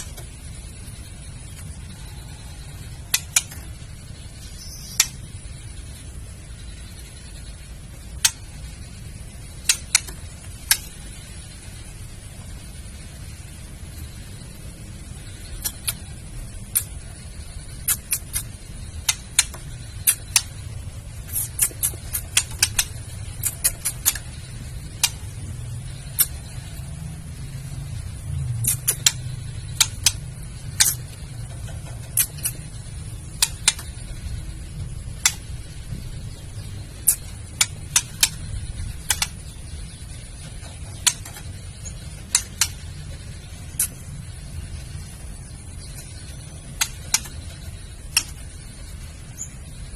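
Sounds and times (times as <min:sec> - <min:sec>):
steady low hum: 0:00.0 - 0:49.9
bird clicking call: 0:04.7 - 0:05.2, 0:09.6 - 0:11.0, 0:15.6 - 0:16.1, 0:16.7 - 0:17.0, 0:17.7 - 0:20.6, 0:21.3 - 0:24.4, 0:25.0 - 0:25.3, 0:28.6 - 0:30.2, 0:33.3 - 0:34.0, 0:37.0 - 0:39.5, 0:46.7 - 0:48.5.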